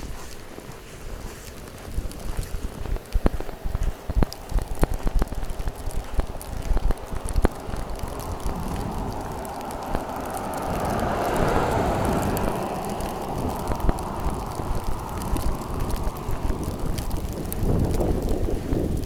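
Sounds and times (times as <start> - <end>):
wind rumbling on microphone: 0.0 - 19.0
car tyres hissing on wet road: 4.3 - 19.0.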